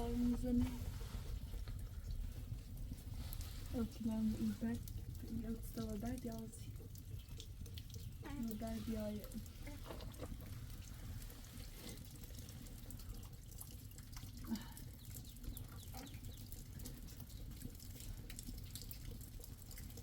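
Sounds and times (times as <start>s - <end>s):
steady low rumble: 0.0s - 7.3s
water dripping: 0.0s - 20.0s.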